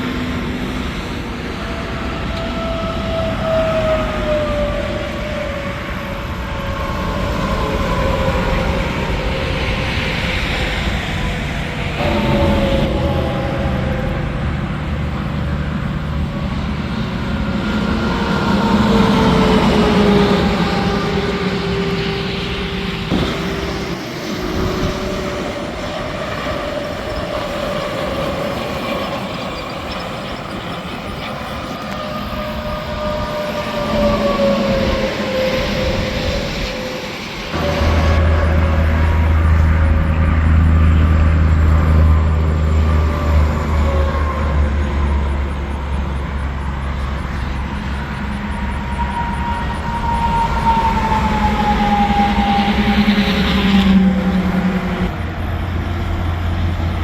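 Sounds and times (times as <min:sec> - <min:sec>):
trucks and vehicles passing: 0:00.0 - 0:57.0.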